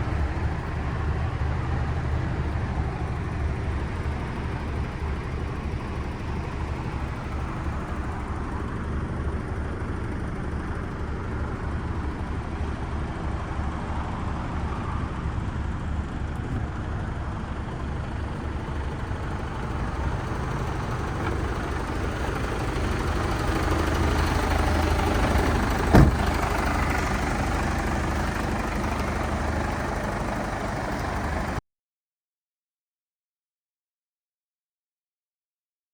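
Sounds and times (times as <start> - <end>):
diesel truck engine running: 0.0 - 31.6
sharp knock: 25.9 - 26.3.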